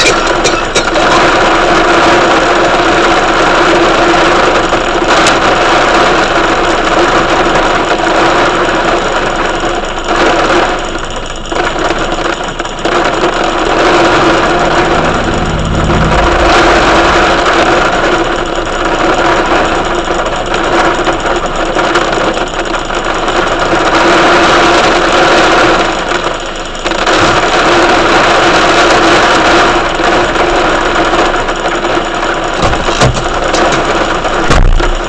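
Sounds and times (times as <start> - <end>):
heavy rain pouring: 0.0 - 35.0
low rumble: 12.8 - 19.8.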